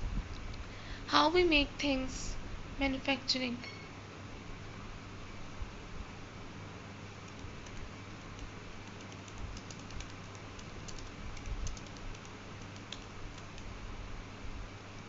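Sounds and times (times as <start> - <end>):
low hum and hiss: 0.0 - 15.0
light irregular clicks: 7.2 - 13.7.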